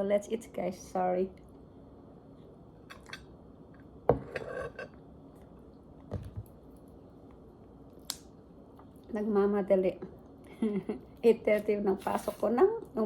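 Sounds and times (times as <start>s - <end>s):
cutlery scraping: 4.2s - 5.0s.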